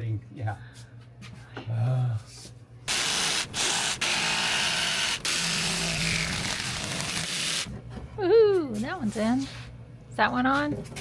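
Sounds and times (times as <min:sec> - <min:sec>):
power tool running: 0:02.9 - 0:07.7.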